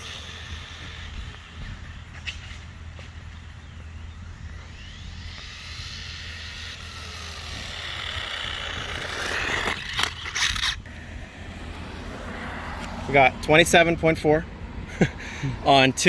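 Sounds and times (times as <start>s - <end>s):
toy car motor whine: 0.0s - 11.8s.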